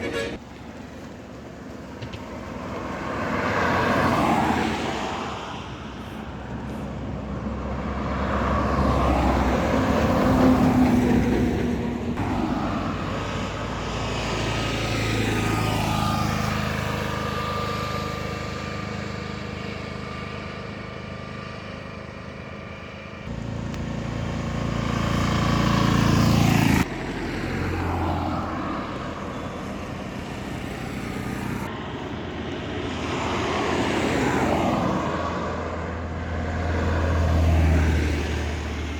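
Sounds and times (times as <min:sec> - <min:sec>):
steady engine drone: 0:00.0 - 0:03.0, 0:05.7 - 0:38.9
buses and trucks passing: 0:00.0 - 0:38.9.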